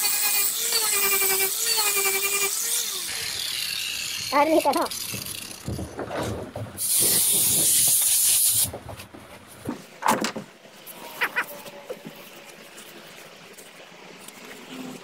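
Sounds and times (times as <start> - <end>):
compressed air hissing: 6.8 - 8.7.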